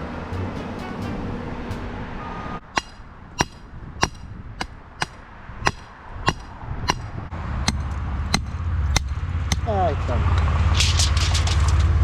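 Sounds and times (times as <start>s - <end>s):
low engine rumble: 0.0s - 12.0s
hammer striking metal: 2.7s - 9.8s.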